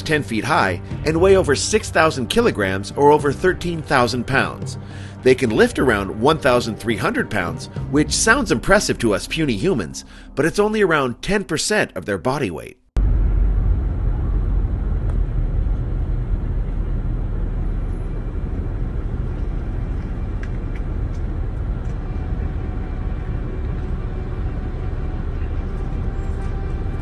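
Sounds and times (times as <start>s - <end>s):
vehicle engine rumbling: 13.0s - 27.0s.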